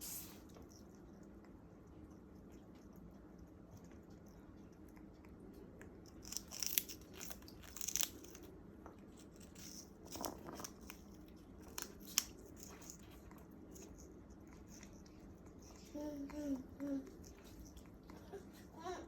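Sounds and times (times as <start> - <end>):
parrot tearing sugarcane: 6.0 - 15.5.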